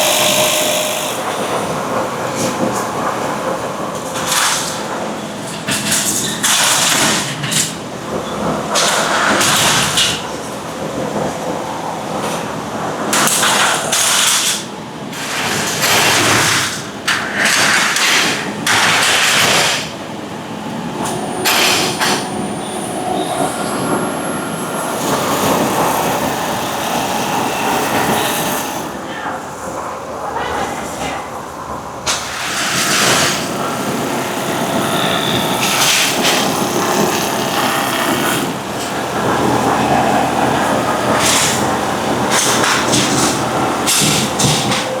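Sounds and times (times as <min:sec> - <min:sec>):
steady mechanical din: 0:00.0 - 0:04.8, 0:17.2 - 0:29.1, 0:32.1 - 0:45.0
loud noisy machine bursts: 0:00.0 - 0:10.1, 0:15.4 - 0:29.2, 0:32.1 - 0:45.0.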